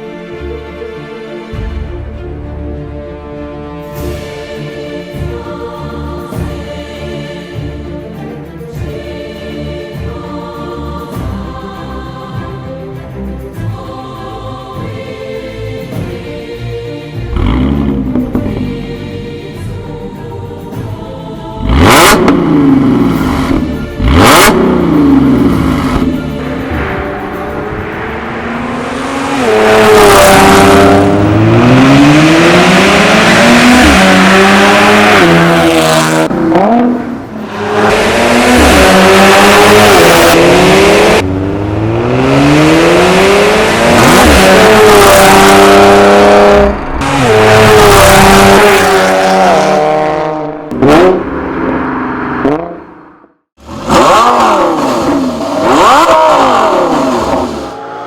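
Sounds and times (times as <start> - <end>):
car engine accelerating hard: 21.6 - 58.0.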